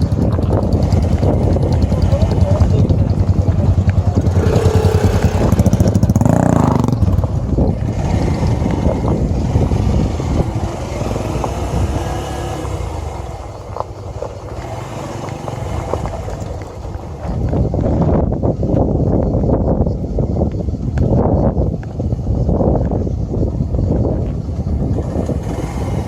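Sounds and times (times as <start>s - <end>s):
small motorcycle engine revving: 0.0s - 17.5s, 24.7s - 26.0s.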